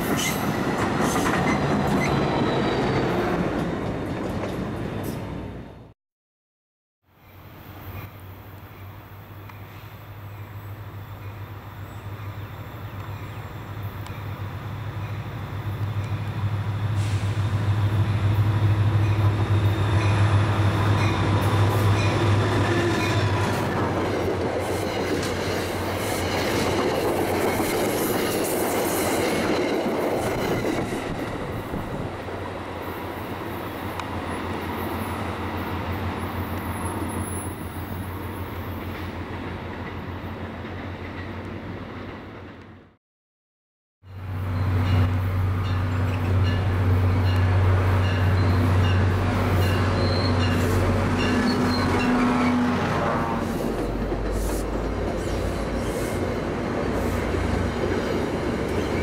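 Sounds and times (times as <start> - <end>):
train wheels clattering on rails: 0.0 - 4.8, 44.8 - 59.0
diesel train engine hum: 7.4 - 42.9, 44.1 - 59.0.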